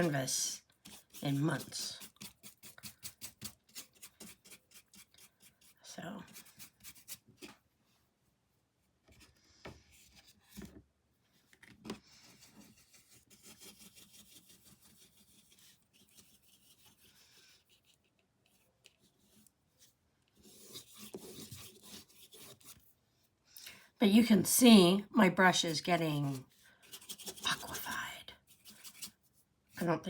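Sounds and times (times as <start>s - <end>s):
paintbrush rubbing on canvas: 0.0s - 7.3s, 12.2s - 22.8s.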